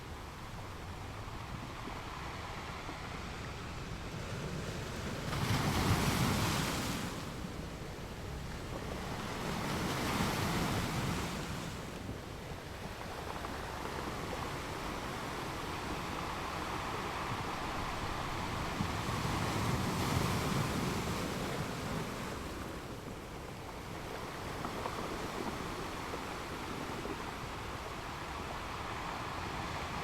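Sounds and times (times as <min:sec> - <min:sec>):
ocean waves breaking on beach: 0:00.2 - 0:30.0.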